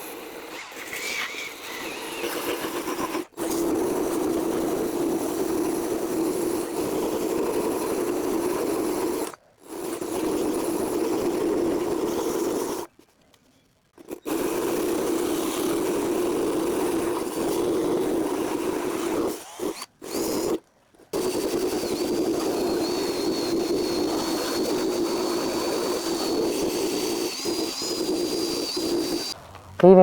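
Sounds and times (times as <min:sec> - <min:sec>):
power tool running: 0:00.0 - 0:03.8, 0:21.2 - 0:29.9.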